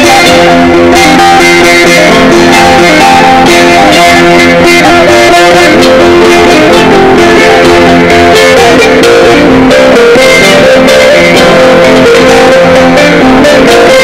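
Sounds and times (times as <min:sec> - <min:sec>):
plucked lute melody with drone: 0:00.0 - 0:14.0.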